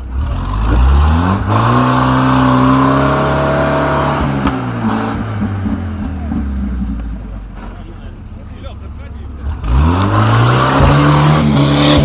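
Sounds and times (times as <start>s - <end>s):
engine revving high: 9.4s - 12.0s.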